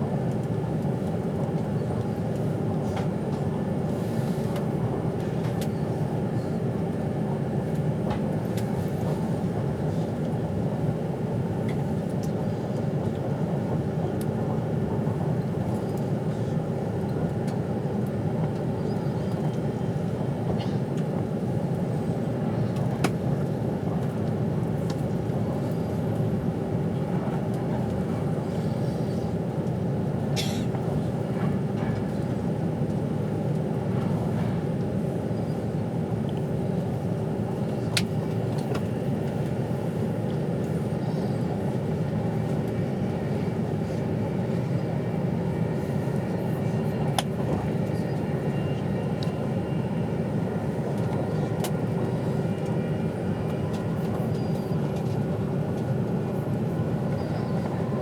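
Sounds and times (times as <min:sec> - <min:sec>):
train carriage rumble: 0:00.0 - 0:58.0
constant hum: 0:00.1 - 0:58.0.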